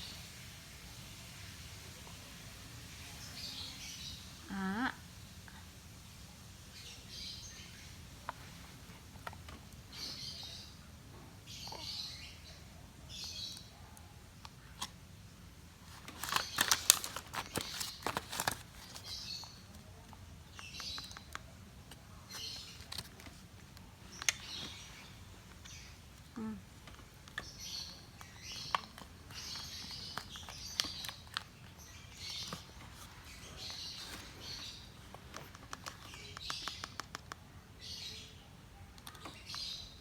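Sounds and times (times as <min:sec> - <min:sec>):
bird chirping: 0:09.9 - 0:14.0, 0:27.3 - 0:40.0.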